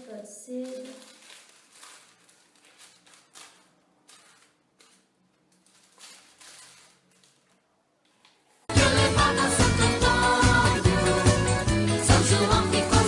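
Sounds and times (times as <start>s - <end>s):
tissue paper rustling: 0.1s - 7.7s.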